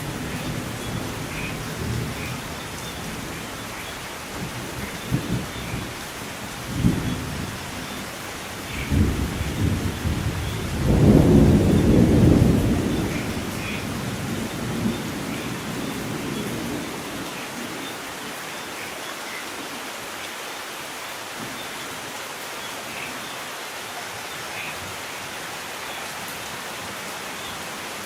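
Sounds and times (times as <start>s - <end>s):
steady rain hiss: 0.0s - 28.0s
rolls of thunder: 8.8s - 17.0s.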